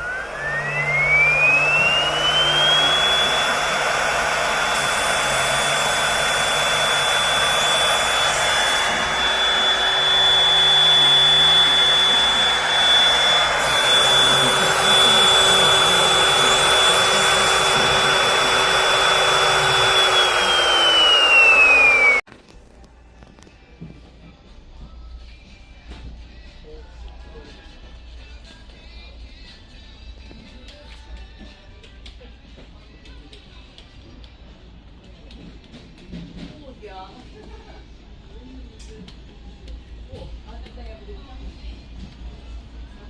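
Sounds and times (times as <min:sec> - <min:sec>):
knife-sharpening machine motor whining: 0:00.0 - 0:22.2.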